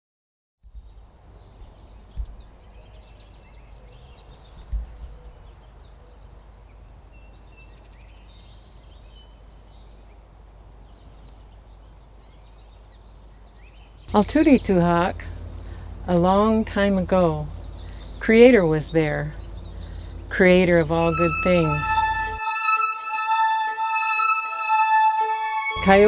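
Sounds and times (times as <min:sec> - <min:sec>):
small birds chirping: 0:00.7 - 0:22.4
low steady rumble: 0:12.9 - 0:22.5.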